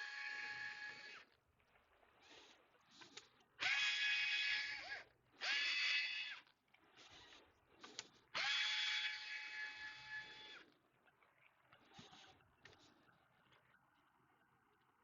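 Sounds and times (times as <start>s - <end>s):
electric screwdriver motor whine: 0.0s - 1.3s, 3.6s - 7.4s, 8.4s - 10.7s.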